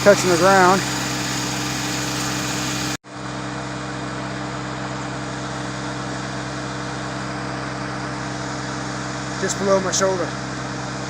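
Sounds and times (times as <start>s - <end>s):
tractor diesel engine idling: 0.0s - 3.0s.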